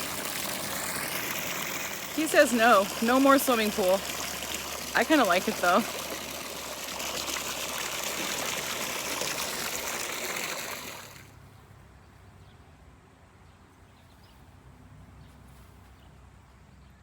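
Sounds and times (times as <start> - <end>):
water running: 0.0 - 11.3.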